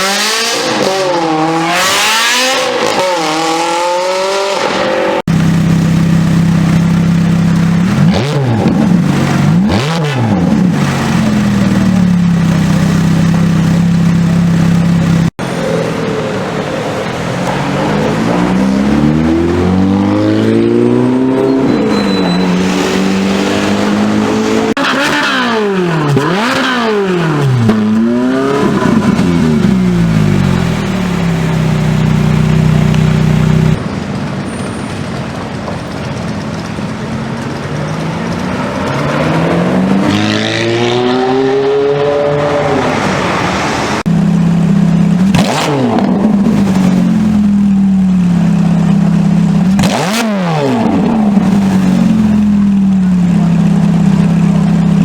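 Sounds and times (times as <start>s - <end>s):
engines revving: 0.0s - 33.9s, 36.0s - 55.0s
cars passing by: 15.4s - 55.0s
engine holding steady note: 28.8s - 37.9s
car accelerating through gears: 37.9s - 44.1s.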